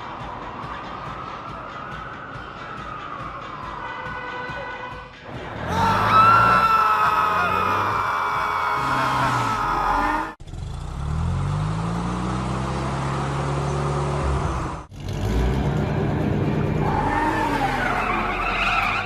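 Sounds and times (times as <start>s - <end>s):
cartoon car engine revving: 8.8s - 19.0s.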